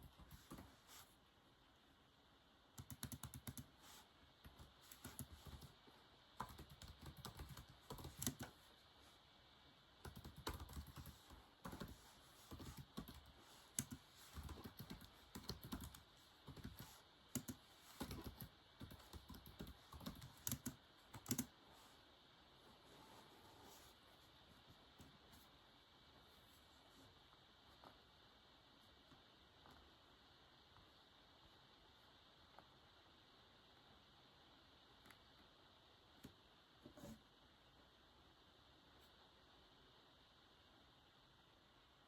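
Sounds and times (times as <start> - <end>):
typing on a keyboard: 2.8 - 3.7, 4.5 - 5.7, 6.4 - 8.6, 10.0 - 21.5.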